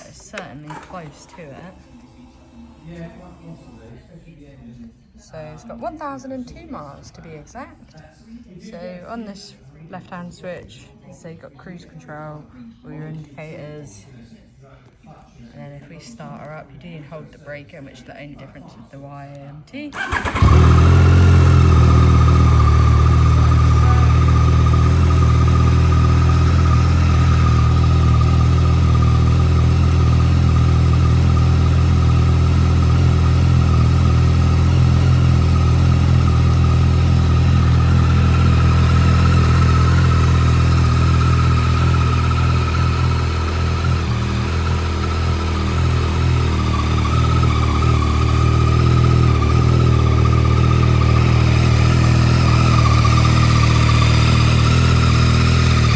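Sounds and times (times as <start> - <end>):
motorcycle engine idling: 0.0 - 3.8, 20.0 - 55.9.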